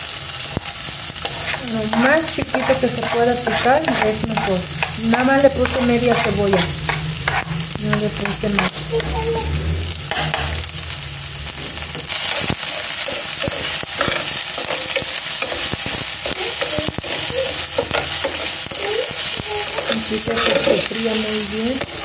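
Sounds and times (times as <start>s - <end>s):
onion and garlic sizzling in oil: 0.0s - 22.0s
metal spoon scraping a pan: 0.6s - 9.3s, 10.1s - 10.6s, 12.0s - 22.0s.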